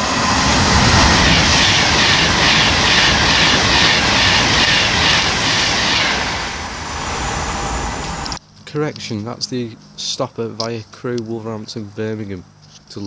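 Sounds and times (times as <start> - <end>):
electric train passing at speed: 0.0 - 8.4.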